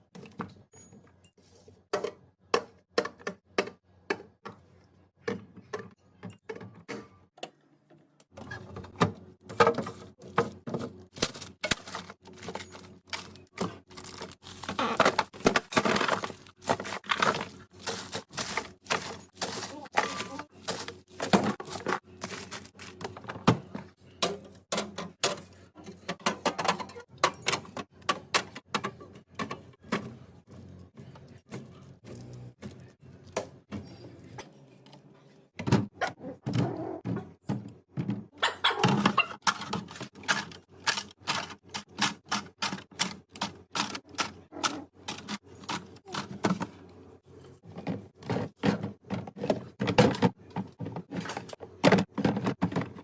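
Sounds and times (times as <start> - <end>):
food containers clicking and knocking: 1.9 - 4.6, 8.4 - 30.2, 35.6 - 46.8, 47.6 - 53.0.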